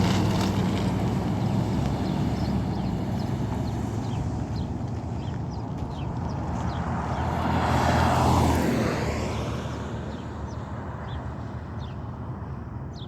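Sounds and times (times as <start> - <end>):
birds chirping: 1.2 - 8.0, 10.1 - 12.1
vehicle driving past: 5.9 - 10.7.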